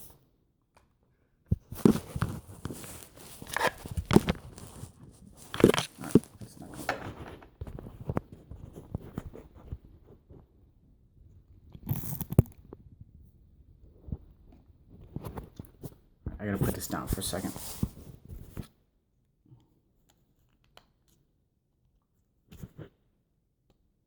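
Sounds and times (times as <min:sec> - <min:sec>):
hands handling plastic model: 0:00.7 - 0:10.5, 0:16.6 - 0:18.8.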